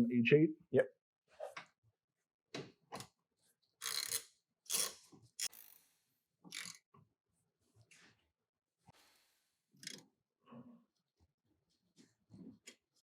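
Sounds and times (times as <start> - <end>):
ratchet clicking and rasping: 3.8 - 5.8.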